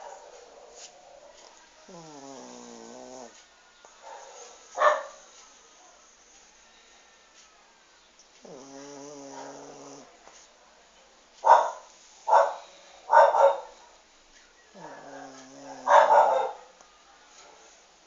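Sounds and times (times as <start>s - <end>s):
dog barking: 0.0s - 1.4s, 4.0s - 5.2s, 9.2s - 10.0s, 11.4s - 14.0s, 15.7s - 16.8s
small dog growling: 1.9s - 3.4s, 8.4s - 10.1s, 14.7s - 16.3s.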